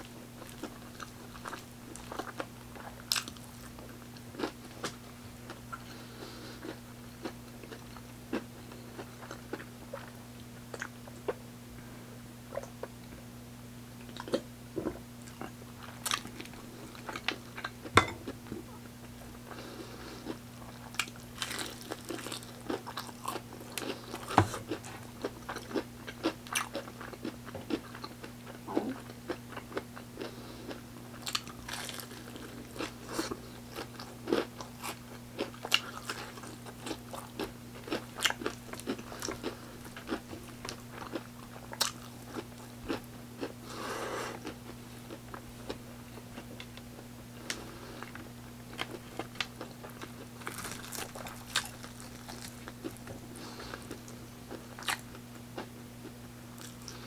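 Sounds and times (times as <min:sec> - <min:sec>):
crunching and chewing food: 0:00.0 - 0:11.5, 0:13.9 - 0:57.0
low electrical hum: 0:00.0 - 0:57.0.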